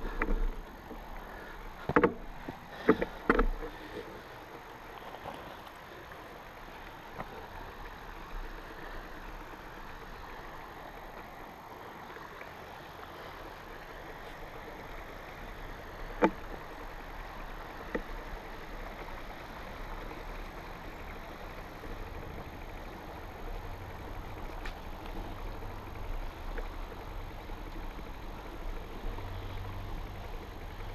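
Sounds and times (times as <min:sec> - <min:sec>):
bike tires rolling: 0:00.0 - 0:30.9.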